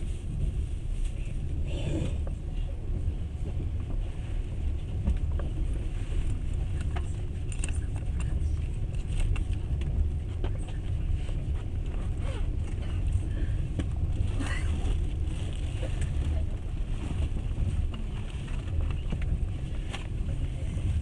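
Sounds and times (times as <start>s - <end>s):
train wheels rumbling on rails: 0.0s - 21.0s
light clicks and rattles: 4.8s - 21.0s.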